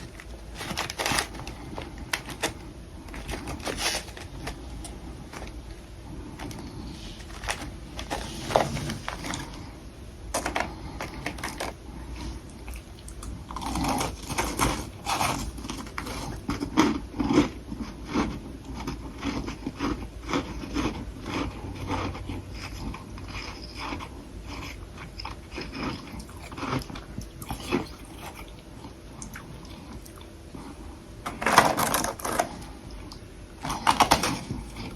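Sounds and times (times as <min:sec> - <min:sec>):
crunching frost between teeth: 0:00.0 - 0:09.7, 0:10.3 - 0:30.7, 0:31.4 - 0:34.9
person chewing: 0:00.0 - 0:30.8.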